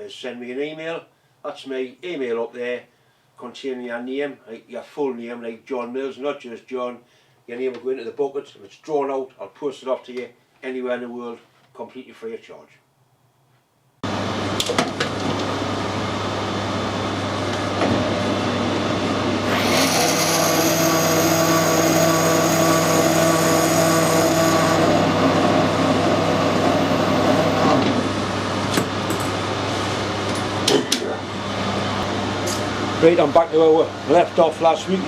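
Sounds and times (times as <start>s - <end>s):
metal lathe motor hum: 14.1s - 30.7s.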